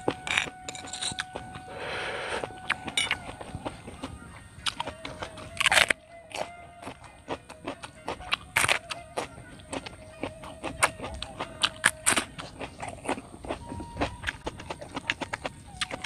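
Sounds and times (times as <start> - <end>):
faint high-pitched tone: 0.0 - 12.5
vegetables crunching being chewed: 0.0 - 16.0.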